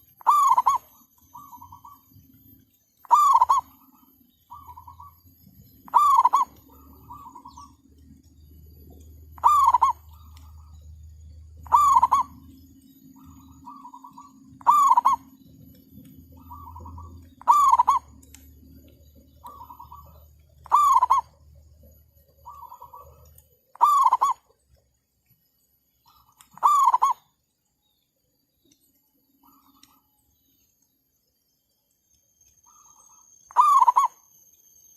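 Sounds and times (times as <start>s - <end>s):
doves cooing: 0.0s - 2.4s, 3.0s - 24.5s, 26.1s - 27.3s, 32.7s - 34.2s
low steady hum: 0.0s - 34.9s.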